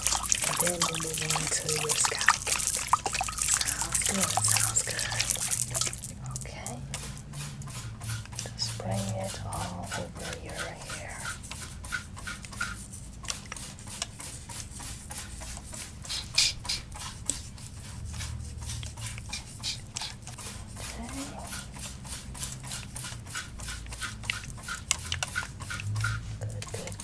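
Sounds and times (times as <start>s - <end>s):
spray bottle spritzing: 0.0s - 6.2s.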